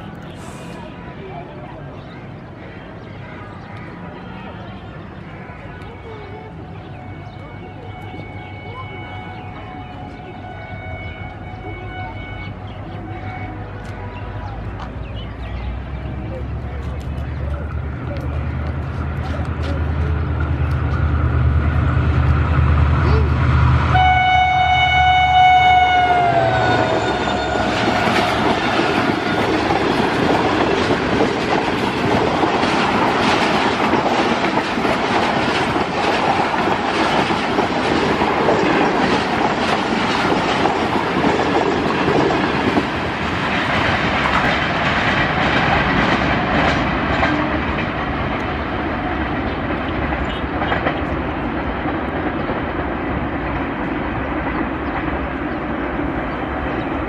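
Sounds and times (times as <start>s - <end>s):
train coaches rumbling past: 0.0s - 57.0s
locomotive horn: 6.1s - 14.6s, 23.2s - 29.9s.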